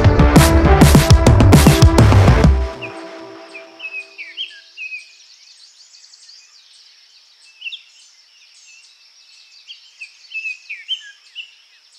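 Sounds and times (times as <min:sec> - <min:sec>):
wild birds chirping and whistling: 0:02.8 - 0:11.9.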